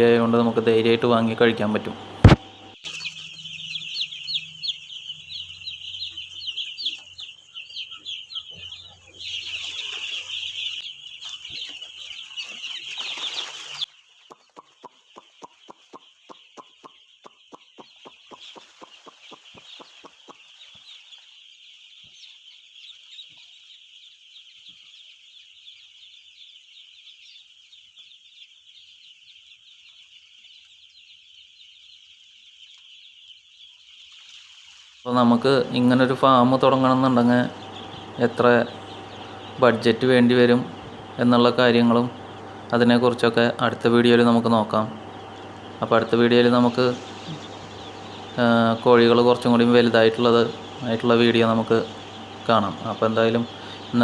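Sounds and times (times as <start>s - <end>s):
low hum: 0.0s - 2.8s, 35.1s - 54.0s
chicks peeping: 0.0s - 54.0s.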